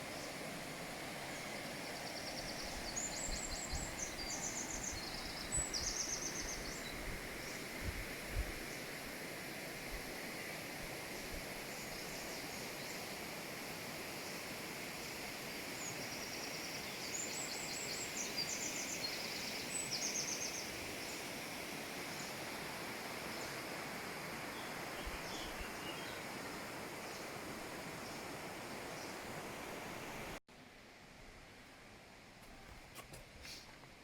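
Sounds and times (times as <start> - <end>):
faint outdoor hiss: 0.0 - 34.0.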